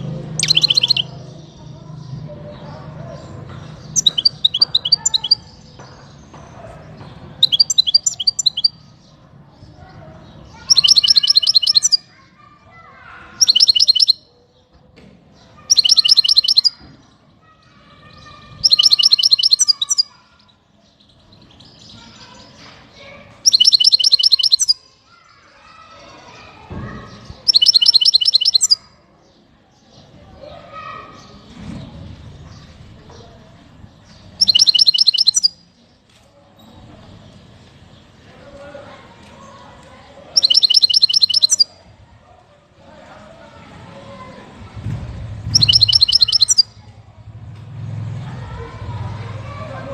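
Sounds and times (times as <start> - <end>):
finch trilling song: 0.0 - 1.5, 3.8 - 5.7, 7.4 - 8.8, 10.6 - 12.1, 13.4 - 14.3, 15.7 - 16.9, 18.1 - 20.2, 23.4 - 24.8, 27.4 - 28.9, 34.4 - 35.6, 40.3 - 41.8, 45.5 - 46.8.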